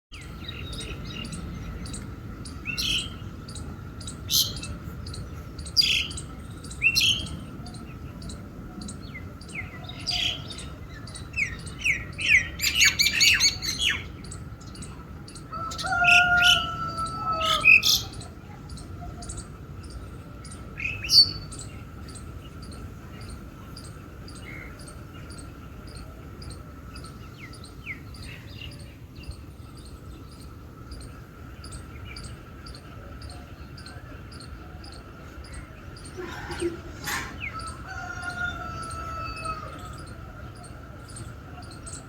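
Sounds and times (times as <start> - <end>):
birds chirping: 0.1 - 42.0
faint steady ticking: 0.2 - 12.4.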